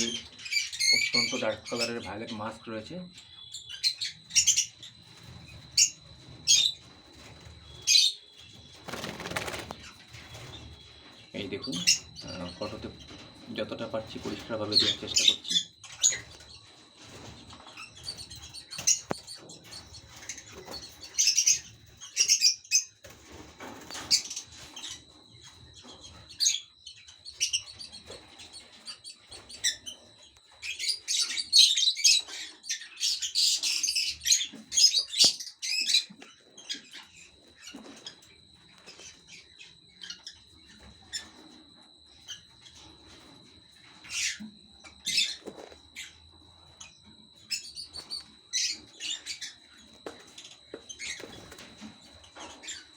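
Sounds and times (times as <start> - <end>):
lovebirds chirping: 0.0 - 16.7
faint high whine: 36.4 - 52.9.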